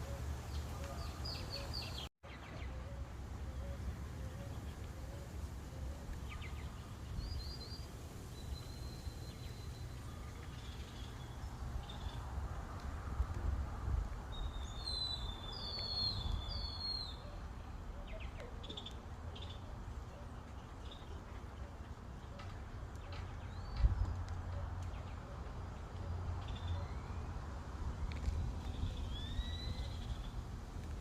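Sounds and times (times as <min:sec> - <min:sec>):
birds chirping and calling: 0:00.0 - 0:12.4, 0:14.2 - 0:27.3
wind rumble on microphone: 0:03.9 - 0:17.8, 0:23.5 - 0:25.0, 0:26.4 - 0:31.0.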